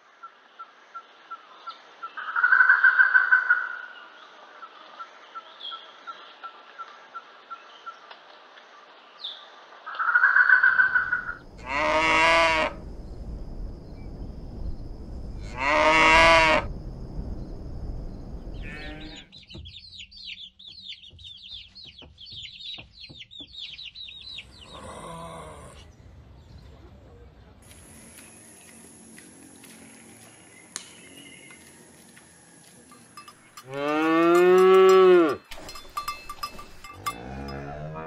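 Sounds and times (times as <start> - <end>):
cow mooing: 11.6 - 12.8, 15.4 - 16.7, 24.6 - 25.8, 33.7 - 35.4, 36.9 - 38.0
rapid bird chirping: 17.3 - 25.0.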